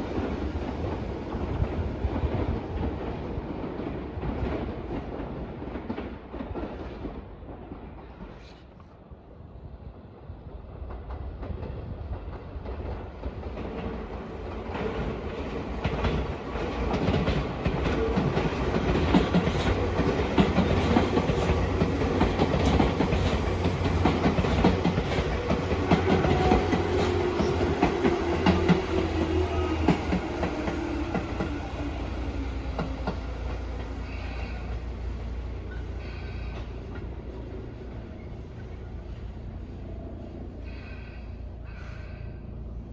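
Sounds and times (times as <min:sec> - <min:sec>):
train whine: 0:00.0 - 0:42.9
electric train passing: 0:09.5 - 0:42.9.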